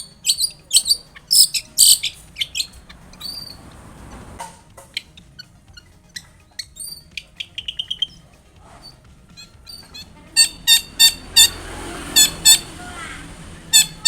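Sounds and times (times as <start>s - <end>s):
shrike chirps and trill: 0.0s - 3.7s, 4.8s - 14.0s
harsh bird calls: 0.0s - 14.0s.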